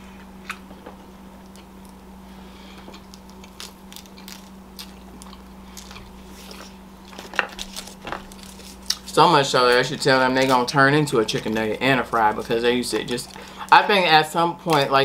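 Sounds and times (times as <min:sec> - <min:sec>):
person chewing and biting food: 0:00.2 - 0:00.8, 0:01.4 - 0:09.1.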